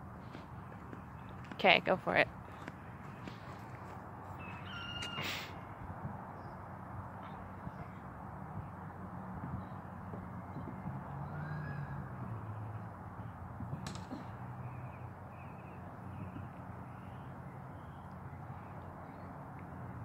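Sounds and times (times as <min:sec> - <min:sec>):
short bird calls: 0:04.4 - 0:05.7.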